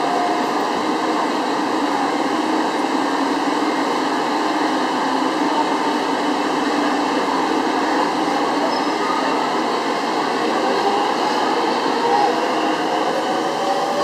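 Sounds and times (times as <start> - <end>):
electric train humming and hissing: 0.0 - 14.0.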